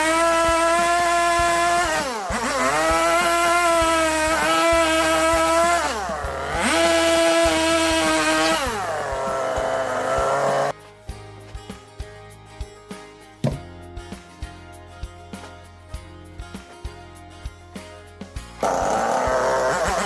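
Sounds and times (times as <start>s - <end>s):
power tool cutting wood: 0.0s - 10.7s, 18.6s - 20.0s.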